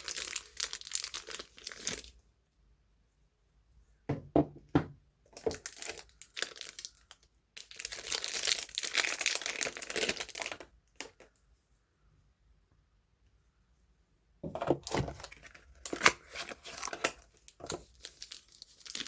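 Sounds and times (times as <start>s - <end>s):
wrapping crinkling: 0.0s - 2.2s, 5.3s - 11.4s, 14.8s - 19.0s.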